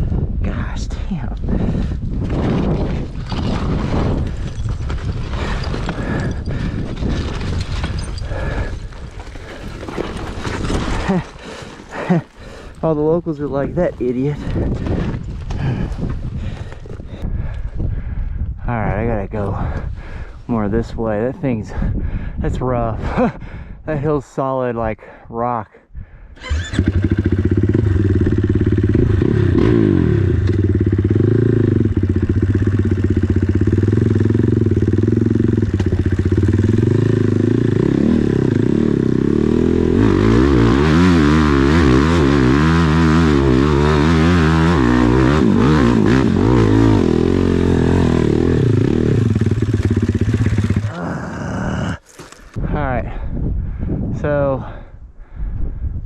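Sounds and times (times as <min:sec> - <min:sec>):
dirt bike engine revving: 0:26.4 - 0:51.9.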